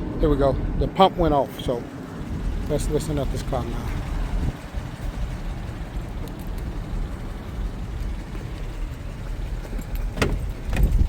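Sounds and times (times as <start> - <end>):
engine idling low rumble: 0.0 - 11.0
slight engine tick: 2.5 - 11.0
short knocks: 9.6 - 11.0.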